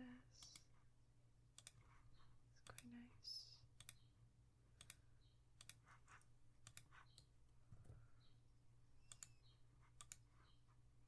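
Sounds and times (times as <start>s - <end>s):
computer mouse clicking: 0.4s - 0.7s, 1.6s - 2.0s, 3.8s - 4.0s, 4.8s - 5.0s, 5.6s - 7.3s, 9.0s - 10.6s.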